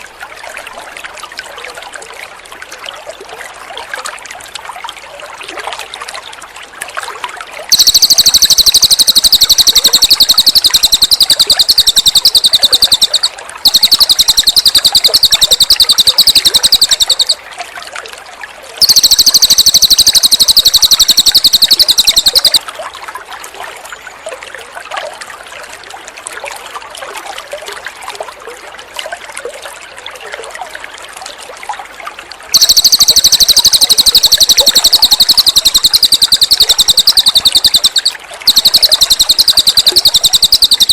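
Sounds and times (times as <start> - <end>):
trickling water: 0.0 - 40.9
songbird rattling trills: 7.7 - 17.4, 18.8 - 22.6, 32.6 - 40.9.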